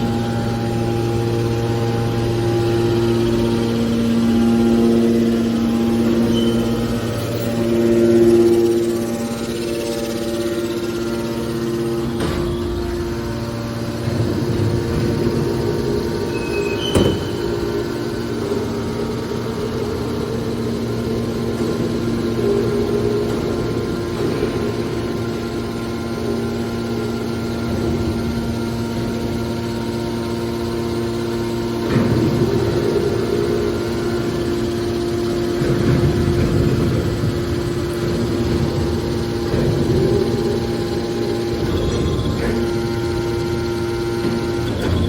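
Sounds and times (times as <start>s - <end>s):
hydraulic pump humming: 0.0s - 45.0s.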